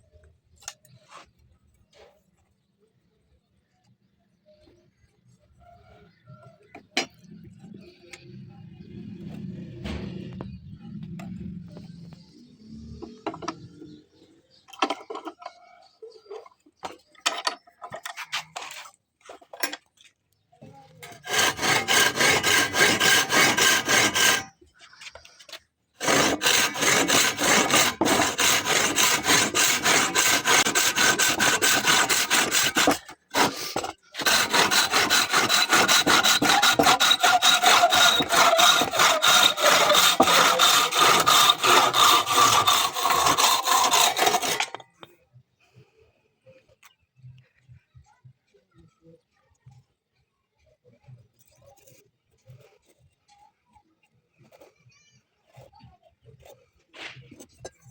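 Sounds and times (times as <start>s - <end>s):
hand tool rasping: 21.0s - 45.1s.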